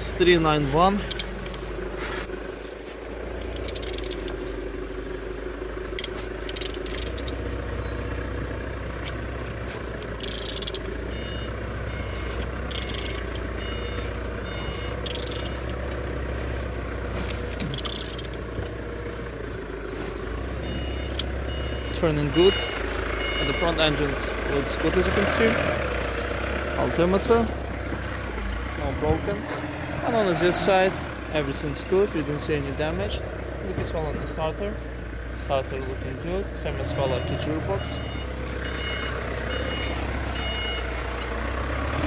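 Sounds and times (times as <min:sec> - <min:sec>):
engine turned over by hand scraping: 0:00.0 - 0:42.0
vehicle reversing beeper: 0:07.7 - 0:08.3, 0:10.2 - 0:15.8, 0:20.6 - 0:25.8, 0:36.7 - 0:42.0.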